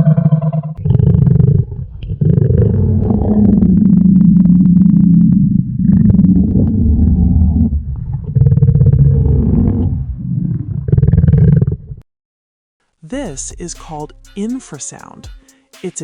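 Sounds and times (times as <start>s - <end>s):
deep low rumbling vocalisation: 0.0s - 12.0s.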